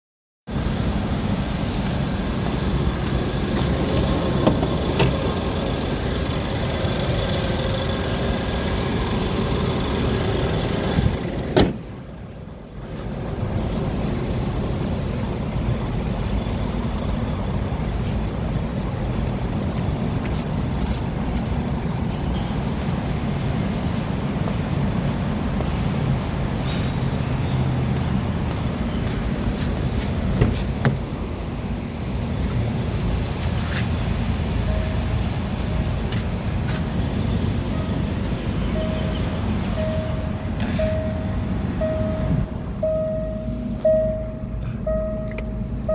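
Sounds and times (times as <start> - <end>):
motor vehicle rumble: 0.5 - 45.9.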